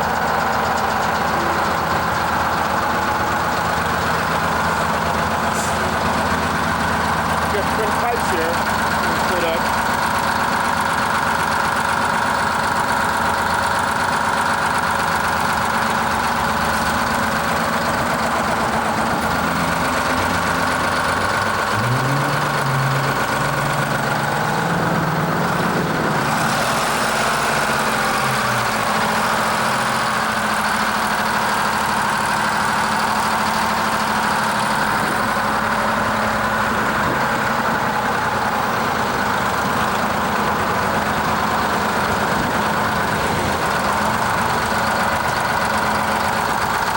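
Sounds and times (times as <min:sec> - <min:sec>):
large engine idling: 0:00.0 - 0:46.9
second low engine note: 0:15.3 - 0:29.1.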